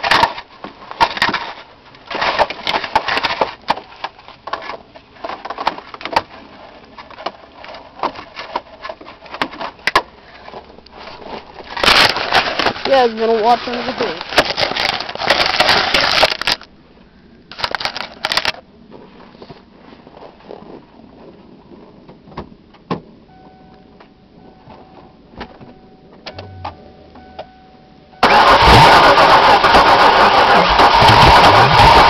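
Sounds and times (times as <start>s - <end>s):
car engine running loud: 28.2s - 32.0s
engine cranking: 28.2s - 32.0s.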